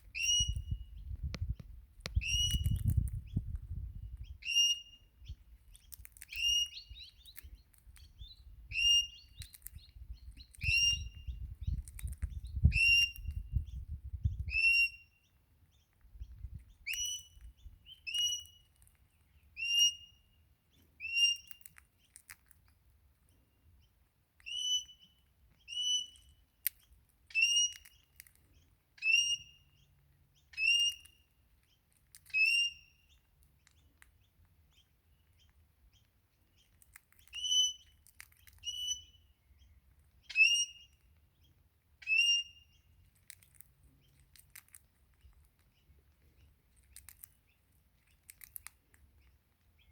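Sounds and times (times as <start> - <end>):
parrot whistled calls: 0.2 - 0.8.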